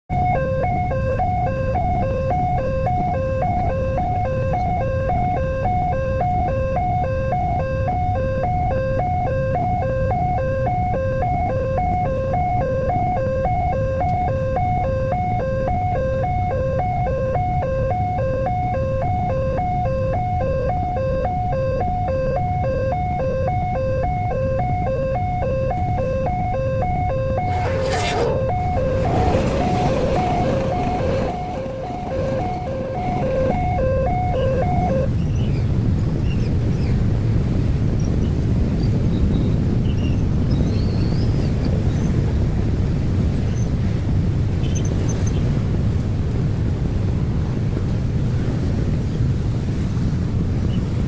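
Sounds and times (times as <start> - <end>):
level crossing warning alarm: 0.1 - 35.1
low rumble: 27.1 - 35.2.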